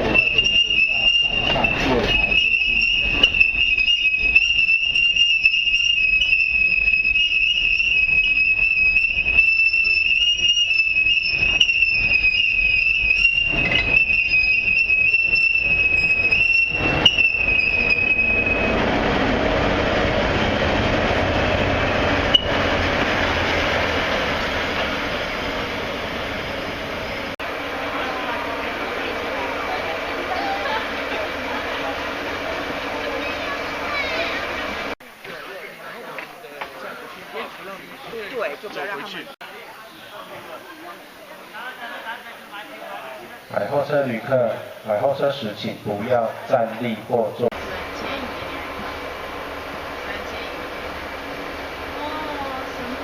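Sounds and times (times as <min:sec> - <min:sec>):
train wheels squealing on rails: 0:00.0 - 0:27.3, 0:28.1 - 0:35.0
train rushing rumble: 0:00.0 - 0:35.2, 0:46.5 - 0:53.0
rail-joint clicks: 0:15.6 - 0:27.3.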